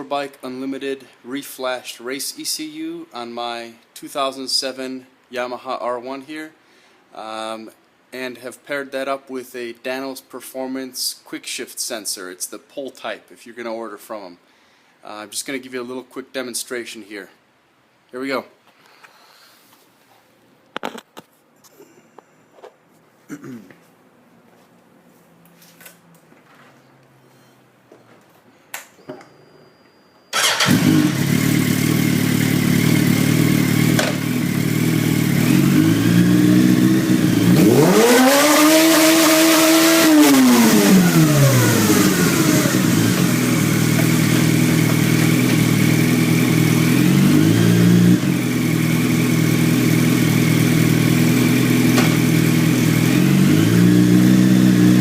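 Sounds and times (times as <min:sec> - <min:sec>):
motorcycle engine revving: 0:30.4 - 0:55.0.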